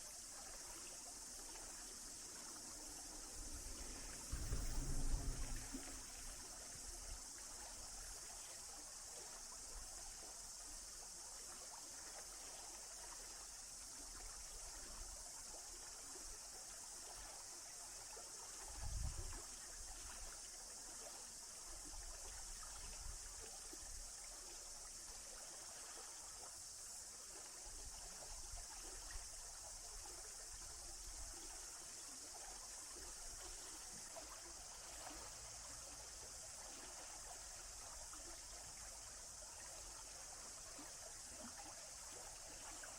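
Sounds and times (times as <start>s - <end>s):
stream running water: 0.0s - 42.9s
low thump: 3.8s - 6.5s.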